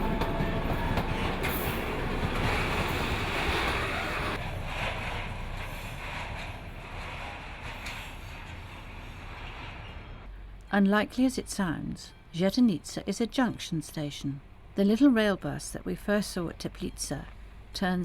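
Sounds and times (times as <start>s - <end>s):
train rolling past: 0.0s - 10.3s.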